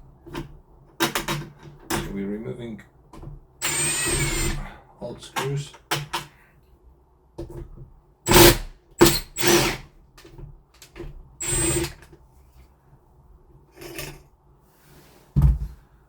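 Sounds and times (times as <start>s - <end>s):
cordless drill bursts: 3.6s - 4.6s, 8.3s - 9.9s, 11.4s - 12.0s.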